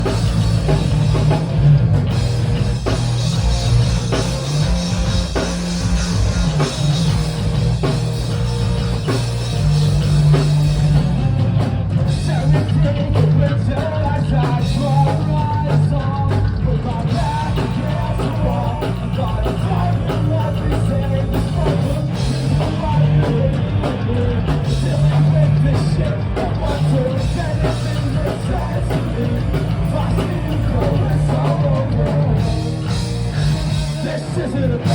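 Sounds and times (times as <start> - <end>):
drum kit: 0.0 - 34.9
heavy bass: 0.0 - 34.9
person singing: 12.2 - 32.6.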